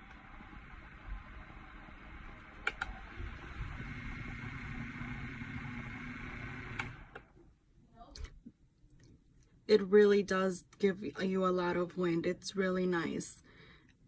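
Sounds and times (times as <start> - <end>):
desk fan whirring: 0.0 - 7.6
fan button clicks: 2.6 - 3.0, 6.7 - 7.3.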